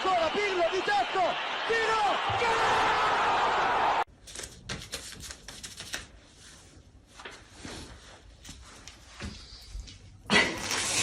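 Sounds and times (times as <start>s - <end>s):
stadium crowd noise: 0.0s - 4.1s.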